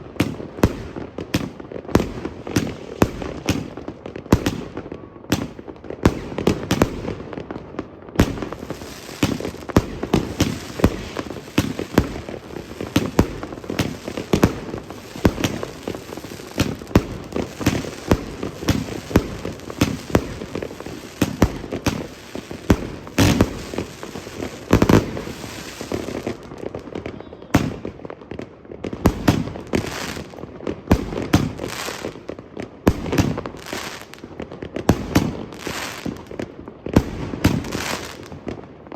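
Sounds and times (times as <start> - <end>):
firework cake firing bangs: 8.2 - 28.0, 28.9 - 30.2, 36.9 - 38.3.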